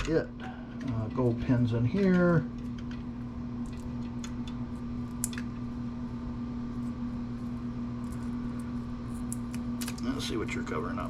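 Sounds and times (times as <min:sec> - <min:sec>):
small parts clicking and tapping: 0:00.0 - 0:05.6
electrical hum: 0:00.0 - 0:11.0.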